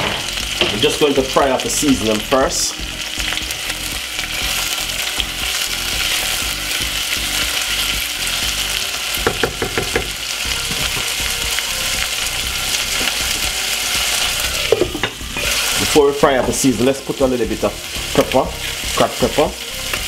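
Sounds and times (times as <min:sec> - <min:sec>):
vegetables sizzling in hot oil: 0:00.0 - 0:20.0
wooden spoon striking a pan: 0:09.2 - 0:11.4.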